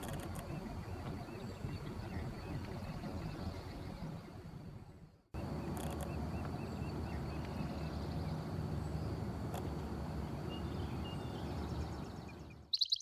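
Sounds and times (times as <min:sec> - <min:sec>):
steady low rumble: 0:00.0 - 0:12.7
faint bird chirps: 0:10.4 - 0:13.0
bird rapid trill: 0:10.6 - 0:13.0.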